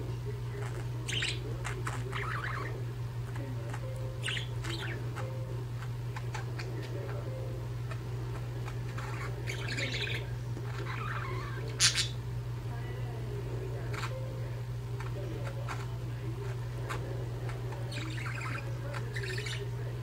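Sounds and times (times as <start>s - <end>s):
low hum: 0.0s - 20.0s
budgerigars chirping: 0.6s - 2.8s, 3.4s - 7.2s, 7.8s - 12.2s, 13.8s - 14.2s, 15.0s - 19.8s.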